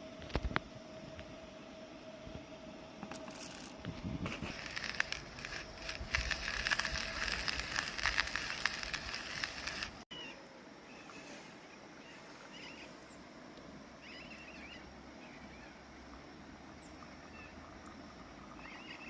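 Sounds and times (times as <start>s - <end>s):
hand coffee grinder crushing beans: 3.1s - 10.0s.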